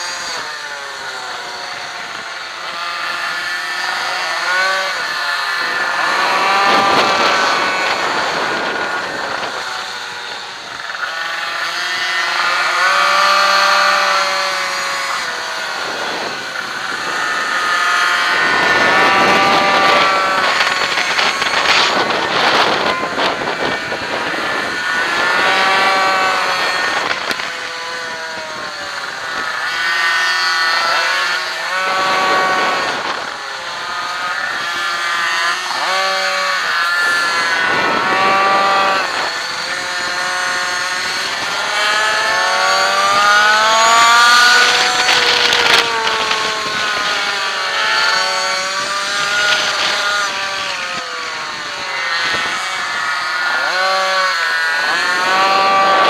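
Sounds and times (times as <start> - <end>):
small two-stroke engine revving: 0.0 - 56.0.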